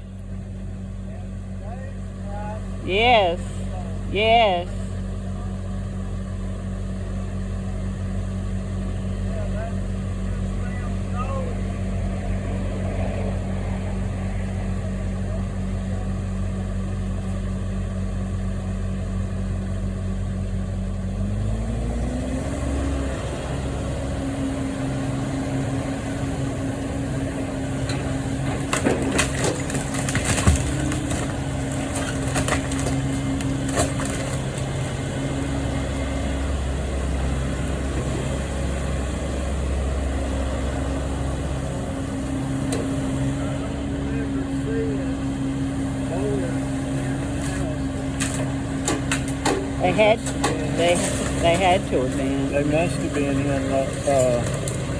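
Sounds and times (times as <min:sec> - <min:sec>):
demolition machine engine: 0:00.0 - 0:54.9
material breaking with cracks: 0:28.5 - 0:34.9.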